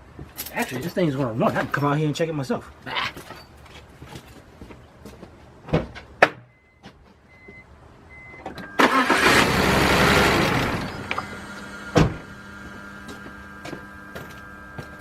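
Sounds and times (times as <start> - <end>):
car engine cranking and starting: 8.2 - 15.0.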